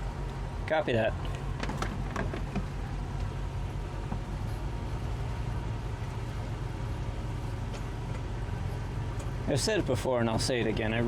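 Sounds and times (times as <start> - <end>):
outboard engines droning: 0.0 - 11.0.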